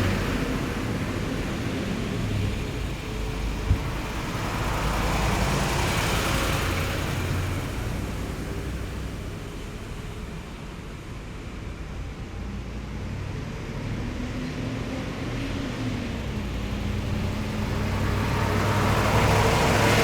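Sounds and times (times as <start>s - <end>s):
heavy vehicles driving past: 0.0s - 11.4s, 12.2s - 20.0s
short knock: 3.6s - 4.2s.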